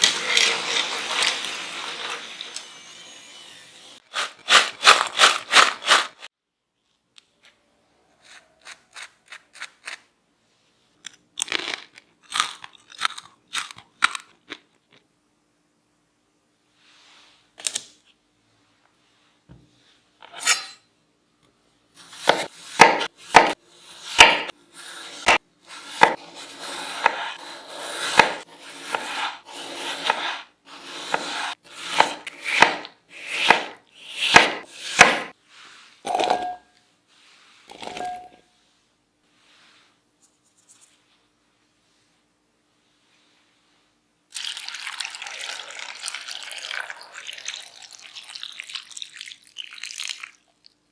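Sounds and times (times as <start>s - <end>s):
knife scraping board: 0.0s - 6.3s, 20.2s - 20.8s, 22.0s - 35.3s, 36.0s - 36.7s, 37.7s - 38.4s
knife chopping potatoes on board: 22.0s - 35.3s.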